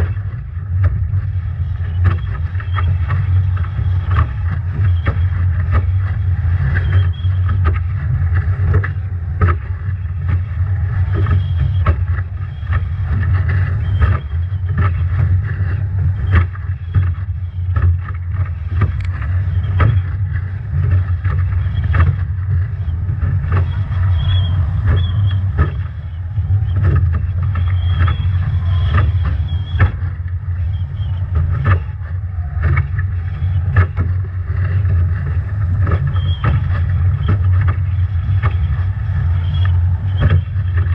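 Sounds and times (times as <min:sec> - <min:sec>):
waves slapping boat: 0:00.0 - 0:40.9
wind buffeting microphone: 0:00.0 - 0:40.9
faint high whistle: 0:23.7 - 0:29.9.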